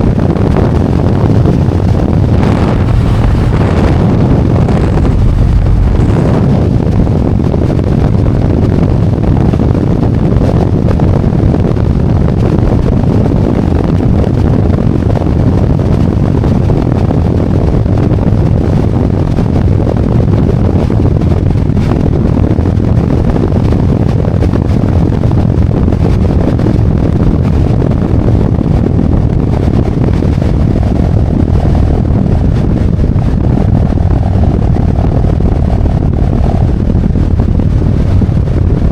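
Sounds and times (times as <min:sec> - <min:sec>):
wind rush on microphone: 0:00.0 - 0:38.9
motorcycle engine running: 0:00.7 - 0:08.0.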